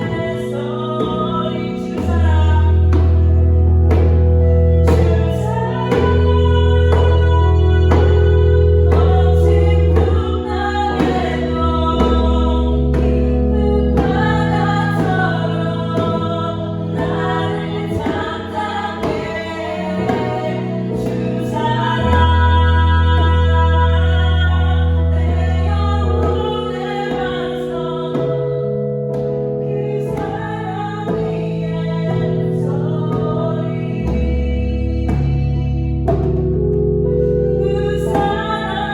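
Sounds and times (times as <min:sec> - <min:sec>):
person singing: 0:00.0 - 0:36.5, 0:37.2 - 0:38.9
low bass: 0:00.0 - 0:38.9
sustained chordal accompaniment: 0:00.0 - 0:38.9
djembe beat: 0:03.9 - 0:23.6.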